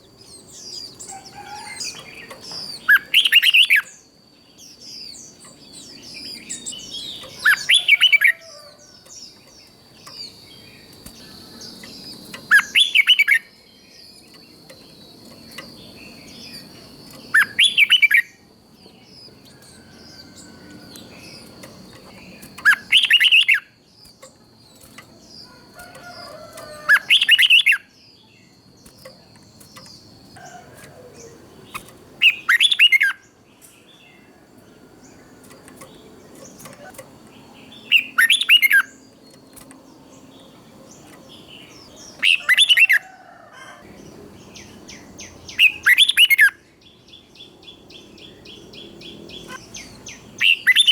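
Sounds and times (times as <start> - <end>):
bulbul singing whistled notes: 9.4 - 18.4.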